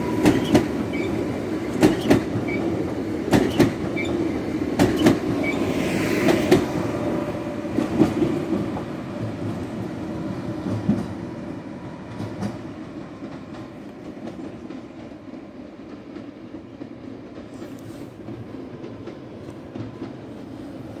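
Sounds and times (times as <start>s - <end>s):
wheels clacking over rail joints: 0.0s - 6.8s
train pulling away: 0.0s - 21.0s.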